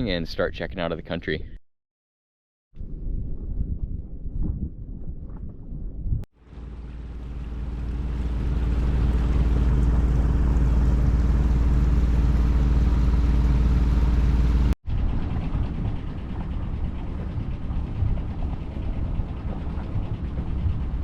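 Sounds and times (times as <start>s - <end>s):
boat engine droning: 6.4s - 21.0s.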